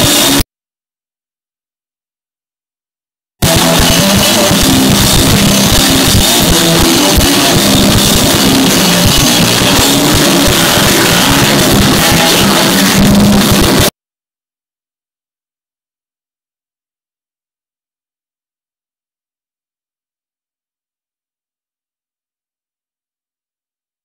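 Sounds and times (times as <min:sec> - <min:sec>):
punk band playing loud: 0:03.4 - 0:13.9.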